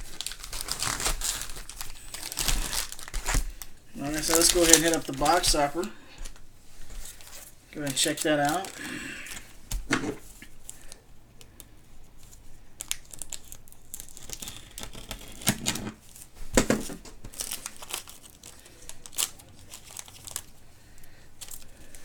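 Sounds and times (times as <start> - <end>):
wrapper tearing and crinkling: 0.0 - 5.9, 7.1 - 9.4, 12.2 - 16.3, 17.2 - 20.6, 21.4 - 22.0.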